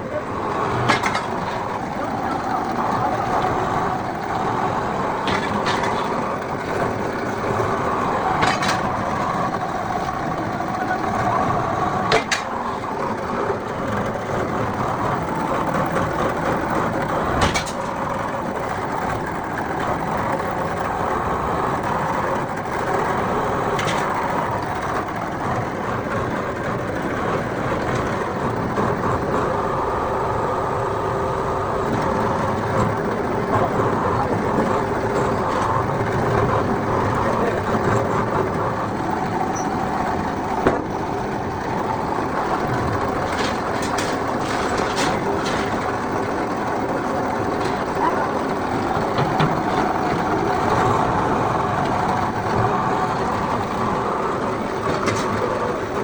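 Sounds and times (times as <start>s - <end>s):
workshop machinery hum: 0.0s - 56.0s
sharp clicks and knocks: 0.6s - 2.1s, 2.7s - 10.9s, 12.0s - 20.9s, 21.7s - 29.5s, 39.2s - 51.2s.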